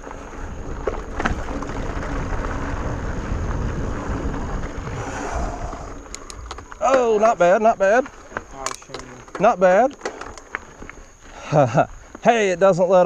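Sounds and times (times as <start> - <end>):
wind on microphone: 0.0 - 6.8
bike clicks and rattles: 0.0 - 12.3
tyres rolling on dirt: 0.0 - 13.0.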